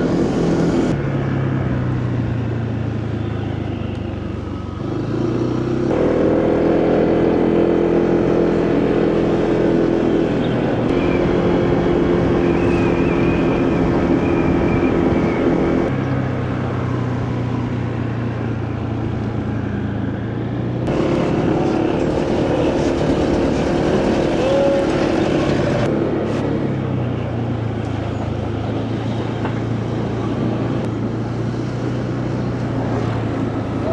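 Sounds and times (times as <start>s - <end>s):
wind and road noise: 0.0s - 33.9s
motorcycle engine running: 20.9s - 25.9s.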